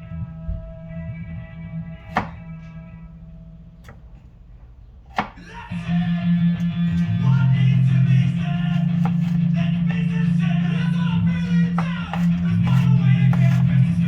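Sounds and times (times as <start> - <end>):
knife chopping on cutting board: 2.0 - 2.4, 5.1 - 5.6, 8.5 - 9.5, 11.3 - 14.0
guitar rock music: 5.4 - 14.0.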